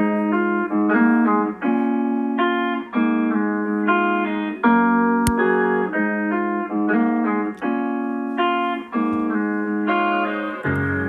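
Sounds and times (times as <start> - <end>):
sharp click: 5.2 - 5.6.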